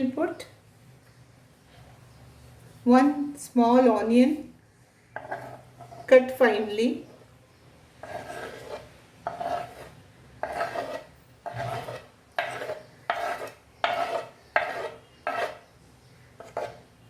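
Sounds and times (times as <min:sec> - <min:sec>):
utensil scraping a dish: 0:05.2 - 0:06.3, 0:08.0 - 0:15.7, 0:16.4 - 0:16.9.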